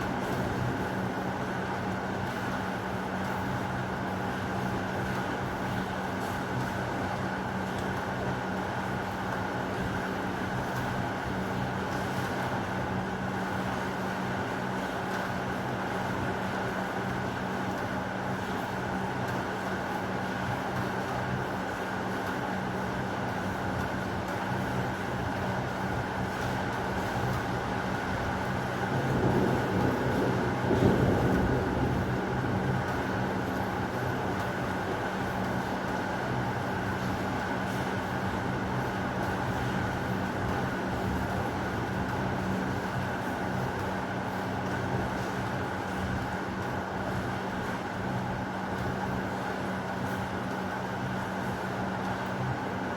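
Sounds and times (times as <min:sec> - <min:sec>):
heavy rain: 0:24.2 - 0:52.9
low rumble of thunder: 0:28.6 - 0:34.6.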